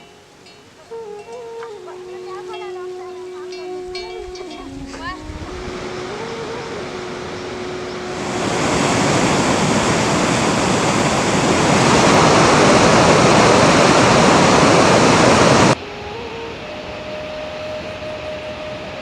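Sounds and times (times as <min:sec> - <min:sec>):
loud rushing water: 0:04.8 - 0:19.0.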